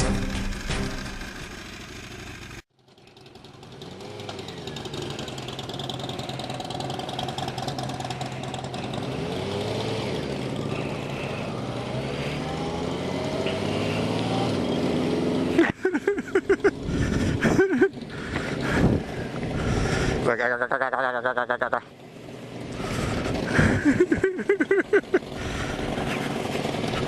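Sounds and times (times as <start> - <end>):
music track: 0.0 - 1.6
motorcycle engine running: 0.0 - 27.0
wind noise: 18.6 - 19.9.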